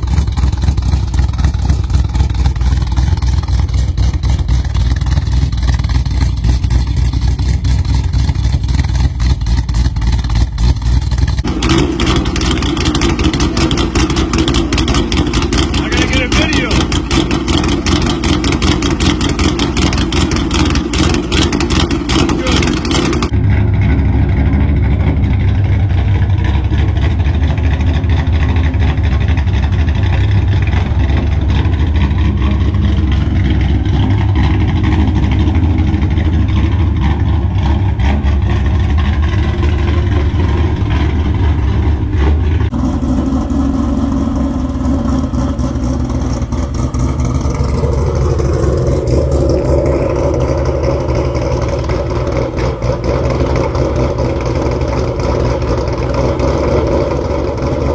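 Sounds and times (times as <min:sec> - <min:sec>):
car engine choppy idle: 0:00.0 - 0:57.9.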